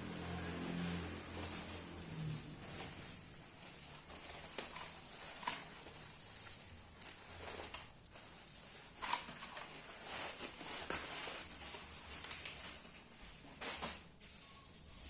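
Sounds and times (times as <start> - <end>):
packaging rustling: 0.0 - 15.0.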